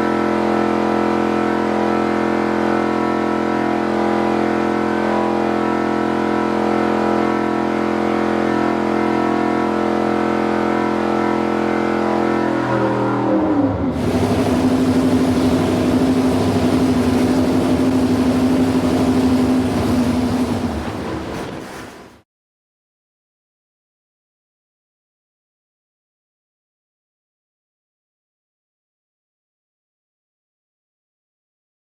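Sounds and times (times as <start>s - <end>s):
airboat engine running: 0.0s - 22.2s.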